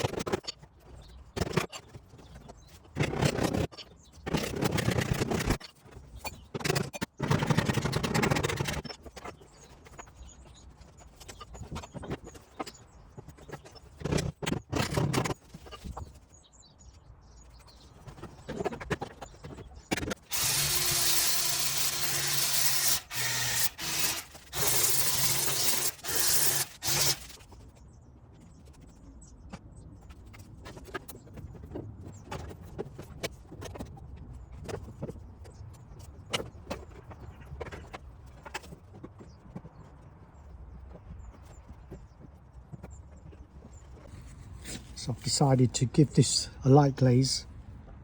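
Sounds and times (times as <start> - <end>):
power tool motor and air rush: 20.2 - 27.4.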